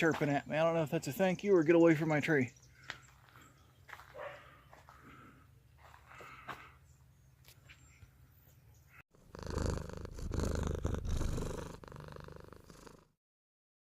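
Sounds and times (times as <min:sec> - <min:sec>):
cat purring: 0:09.2 - 0:13.1.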